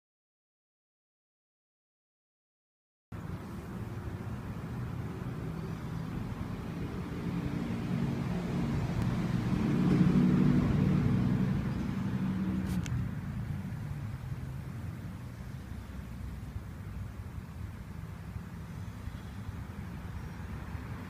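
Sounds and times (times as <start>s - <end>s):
vehicle engine passing by: 3.2s - 21.0s.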